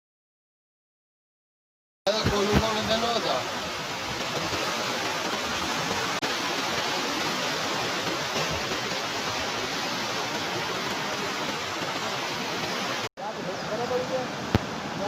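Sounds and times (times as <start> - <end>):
floodwater rushing: 2.1 - 15.0.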